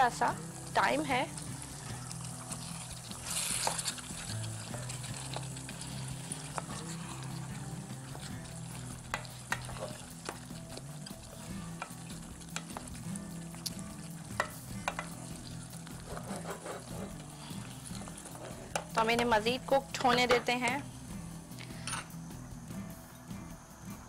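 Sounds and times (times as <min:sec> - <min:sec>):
vegetables sizzling in a pot: 0:00.0 - 0:24.0
metal spoon scraping a pot: 0:01.5 - 0:20.6.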